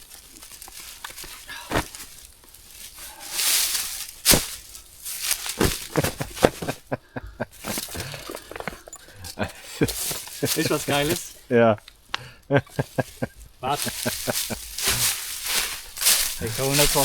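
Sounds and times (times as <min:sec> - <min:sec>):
fabric rustling: 0:00.0 - 0:07.0, 0:09.6 - 0:11.5, 0:12.7 - 0:17.0.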